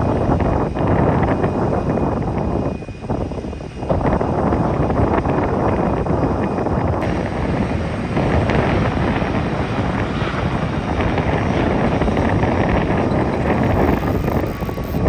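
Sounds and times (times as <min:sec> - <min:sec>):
jet airliner landing rumble: 0:06.8 - 0:15.0.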